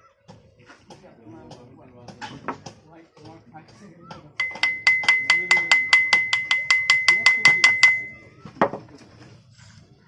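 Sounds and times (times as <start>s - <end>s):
hammer taps on metal: 4.1s - 8.8s
steady ringing tone: 4.4s - 8.4s.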